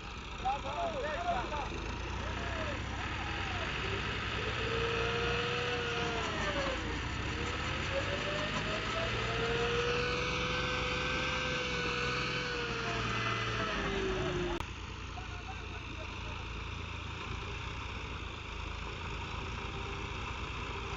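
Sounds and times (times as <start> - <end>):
tractor engine running: 0.0 - 20.9.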